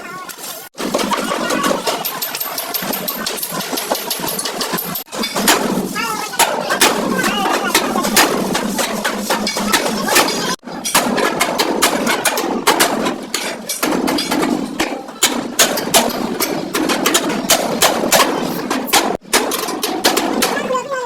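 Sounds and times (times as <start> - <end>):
steady mechanical noise: 0.0 - 21.0
hammer on sheet metal: 5.2 - 20.7.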